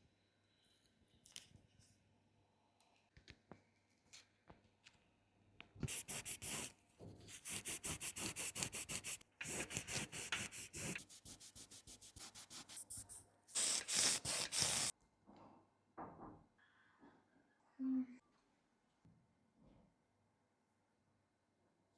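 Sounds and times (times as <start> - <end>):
rubbing strokes on phone: 5.9 - 6.7, 7.3 - 14.9.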